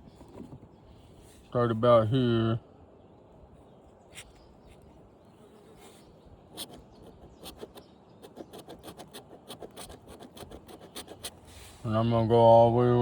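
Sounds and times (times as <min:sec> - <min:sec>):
scratchy marking strokes on metal: 0:05.8 - 0:11.9.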